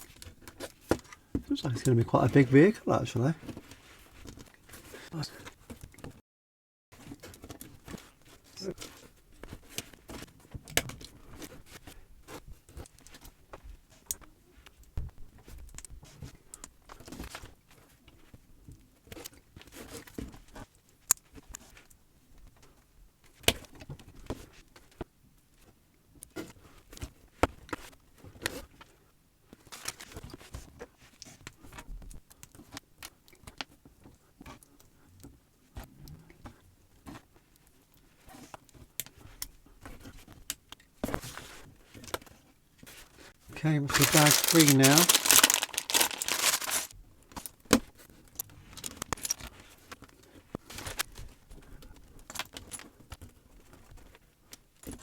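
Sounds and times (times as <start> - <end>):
loose plastic pieces rattling: 43.9 - 46.9
plastic bricks clicking together: 43.9 - 46.9.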